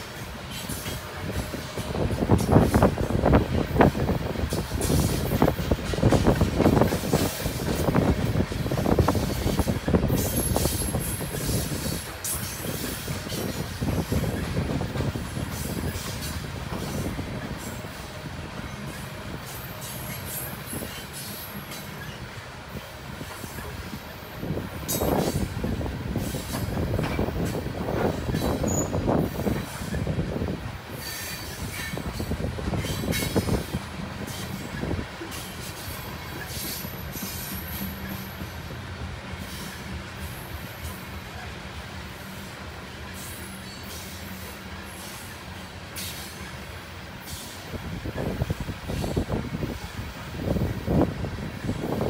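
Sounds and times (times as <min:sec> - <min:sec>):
steel wheels rumbling on rail: 0:00.0 - 0:52.0
train cars clanking: 0:00.0 - 0:52.0
high wheel squeal: 0:28.3 - 0:30.1, 0:30.9 - 0:33.6.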